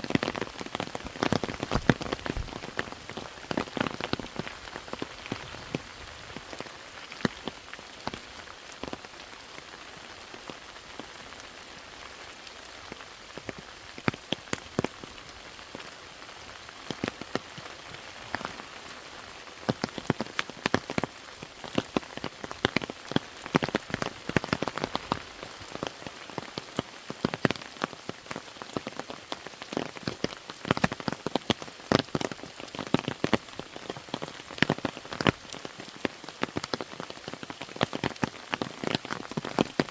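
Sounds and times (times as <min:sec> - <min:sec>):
raindrops striking close by: 0:00.0 - 0:39.9
rain hissing: 0:00.1 - 0:09.0, 0:15.6 - 0:27.6.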